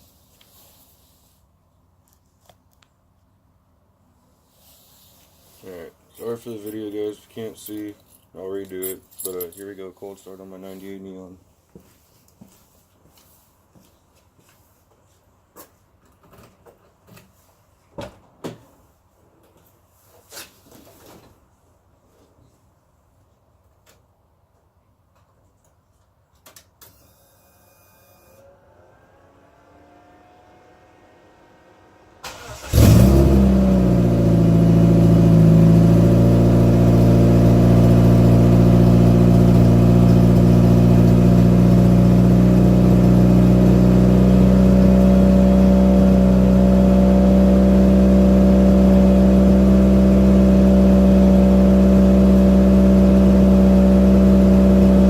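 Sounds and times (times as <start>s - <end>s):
car engine cranking and idling: 28.5s - 55.0s.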